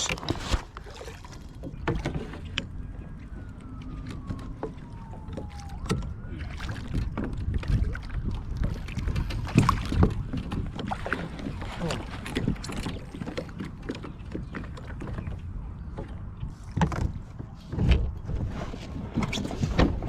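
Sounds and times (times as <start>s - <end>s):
fish thrashing in water: 0.0s - 15.0s.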